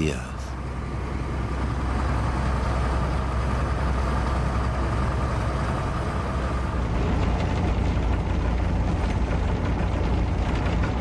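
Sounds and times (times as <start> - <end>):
heavy vehicle engine running: 0.0 - 11.0.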